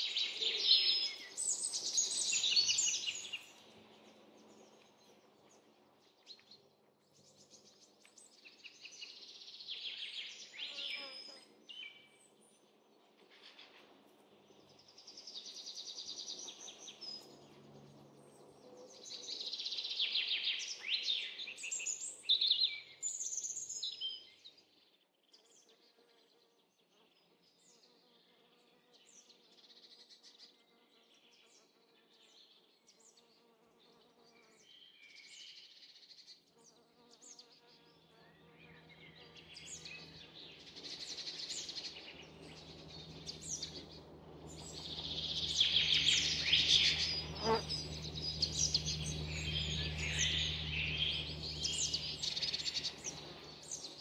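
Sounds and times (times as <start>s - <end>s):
wild birds singing: 0.0s - 24.6s, 37.3s - 54.0s
low steady buzz: 38.1s - 54.0s.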